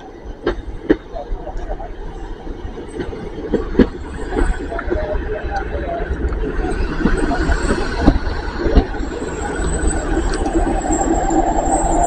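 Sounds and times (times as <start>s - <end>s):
train wheels rolling on rails: 0.0s - 12.0s
faint high-pitched squeal: 4.0s - 12.0s.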